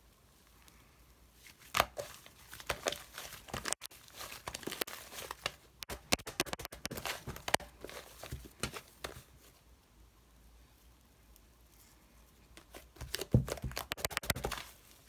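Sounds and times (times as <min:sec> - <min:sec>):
crinkling and scratching: 0:01.4 - 0:09.6, 0:12.6 - 0:15.0.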